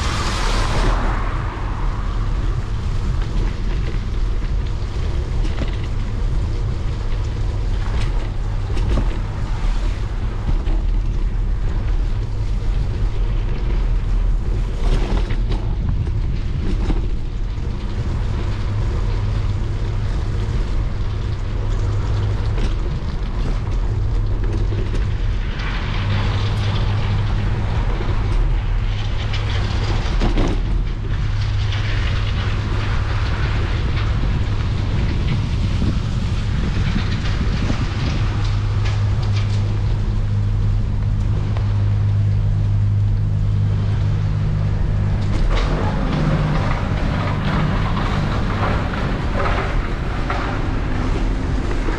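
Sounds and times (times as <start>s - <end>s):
bicycle tyres rolling: 0.0s - 51.9s
wind on microphone: 0.0s - 51.9s.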